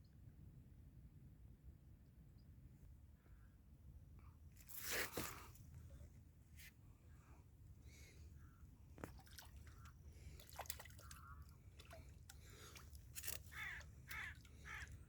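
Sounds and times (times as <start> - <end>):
faint sharp cracks and crunches: 13.1 - 14.2
crows cawing: 13.4 - 15.0.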